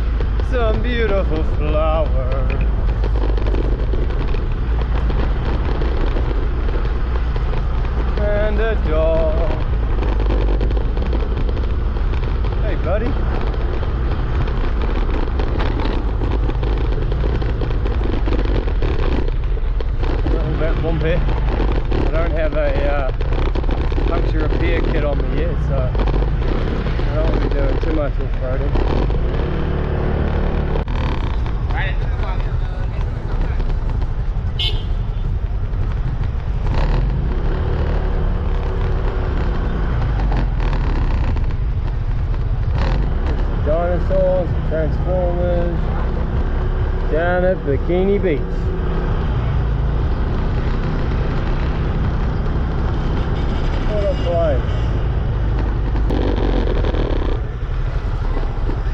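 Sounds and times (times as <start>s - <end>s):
heavy low rumble: 0.0s - 58.9s
road noise: 0.0s - 58.9s
scooter engine drone: 0.0s - 58.9s.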